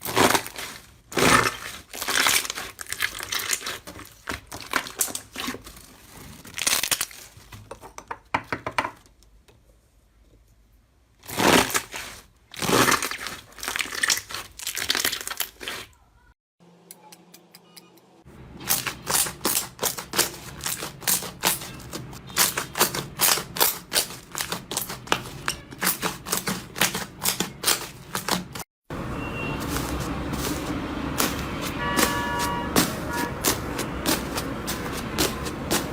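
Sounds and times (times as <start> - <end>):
slime crackling and popping: 11.3 - 15.9.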